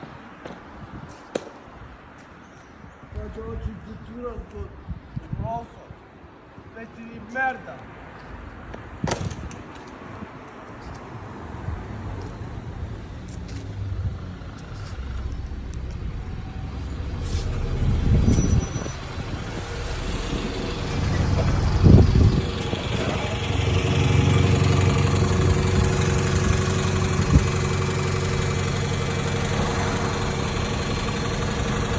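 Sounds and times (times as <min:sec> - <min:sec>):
large vehicle engine running: 0:13.4 - 0:31.9.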